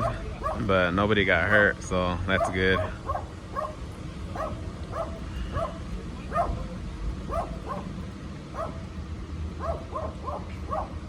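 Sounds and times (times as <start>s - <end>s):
dog yapping barks: 0.0s - 0.7s, 2.4s - 6.6s, 7.3s - 8.9s, 9.6s - 11.0s
steady low rumble: 0.0s - 11.0s.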